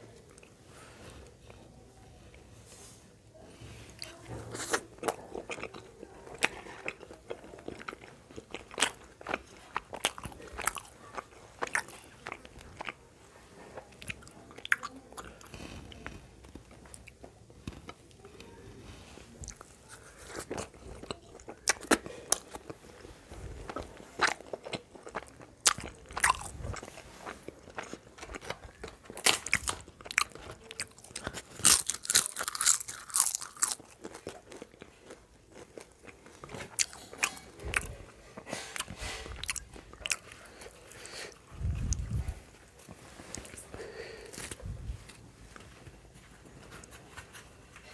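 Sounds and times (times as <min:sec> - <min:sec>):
chewing and smacking: 0:04.0 - 0:13.0, 0:13.7 - 0:18.5, 0:19.4 - 0:47.9
crunchy bites: 0:23.7 - 0:27.0, 0:27.6 - 0:37.9.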